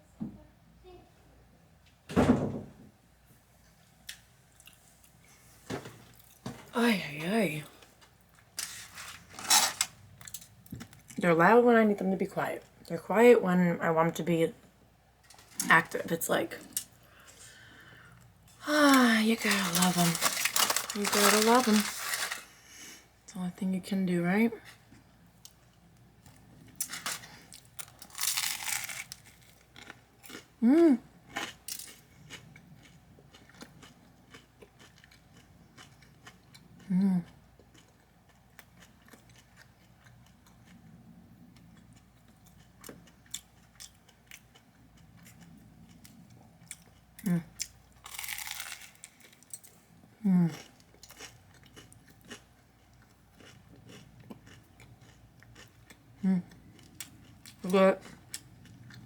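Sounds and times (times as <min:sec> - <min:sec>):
crunchy chewing: 0:18.9 - 0:22.6, 0:24.7 - 0:30.6, 0:31.2 - 0:49.9, 0:50.5 - 0:59.0
person humming: 0:30.6 - 0:31.0.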